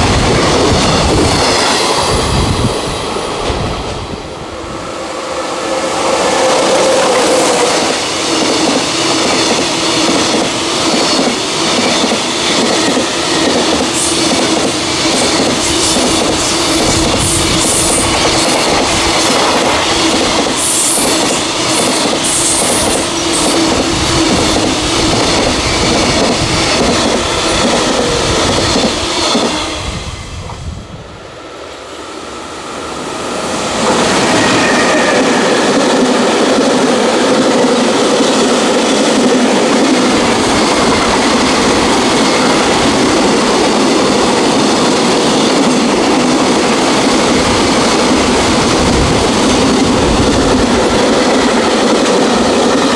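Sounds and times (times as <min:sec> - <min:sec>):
freight train rumbling past: 0:00.0 - 0:52.9.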